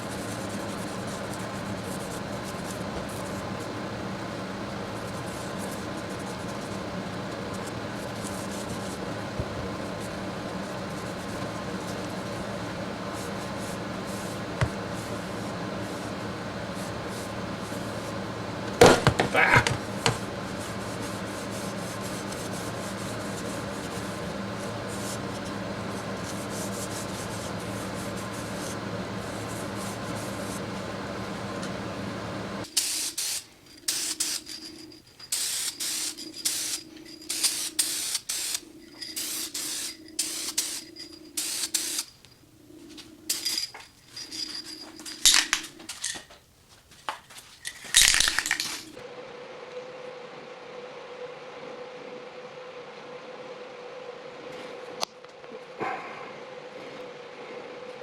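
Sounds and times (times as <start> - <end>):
machine hum: 0.0 - 32.8, 38.6 - 46.7, 47.7 - 58.0
rubbing strokes on metal: 19.3 - 30.8.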